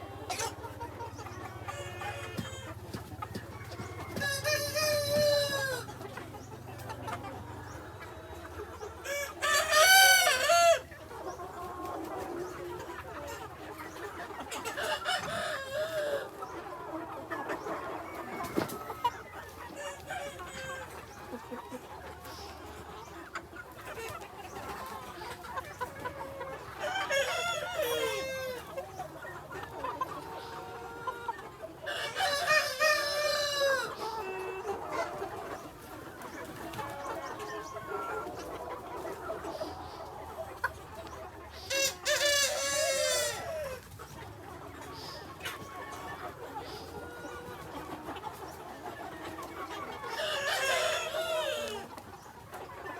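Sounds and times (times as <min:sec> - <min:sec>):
chickens clucking: 0:00.0 - 0:52.9.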